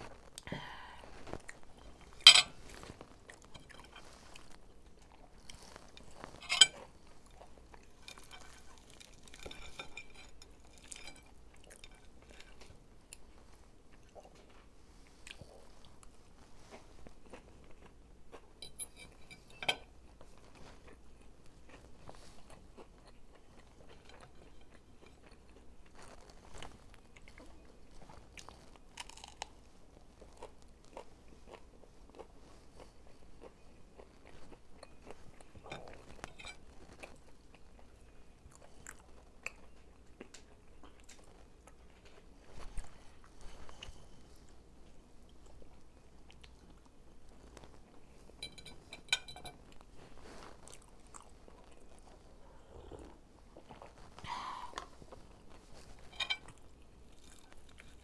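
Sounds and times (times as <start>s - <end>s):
crunching bites and chewing: 21.7s - 42.3s.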